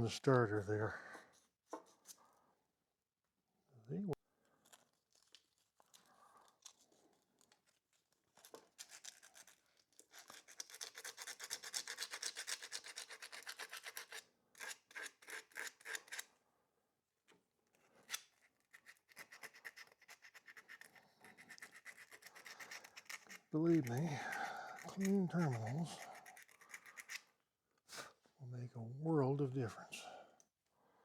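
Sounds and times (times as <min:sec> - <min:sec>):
emery cloth scrubbing metal: 0:24.7 - 0:27.1.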